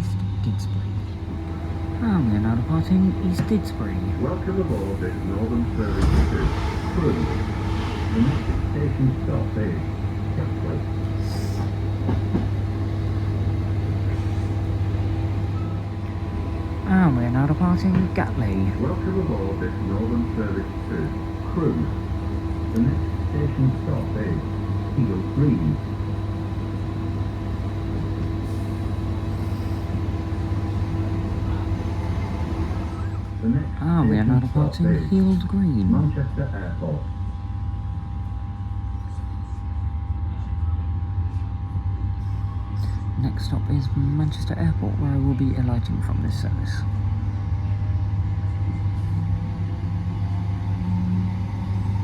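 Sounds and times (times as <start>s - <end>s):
train carriage rumble and hum: 0.0s - 52.0s
steady mid-pitched tone: 1.1s - 35.4s.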